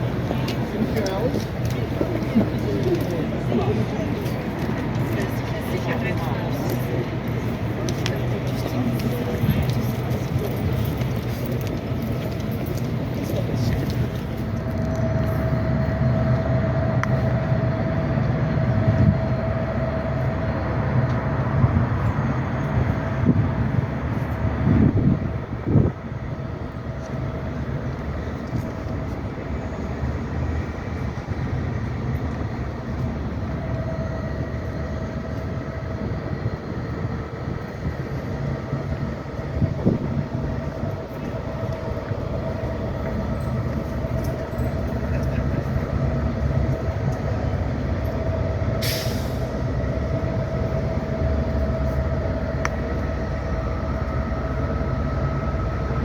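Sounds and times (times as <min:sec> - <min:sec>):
train rumbling and humming: 0:00.0 - 0:56.0
short sharp hiss of air: 0:48.8 - 0:49.6.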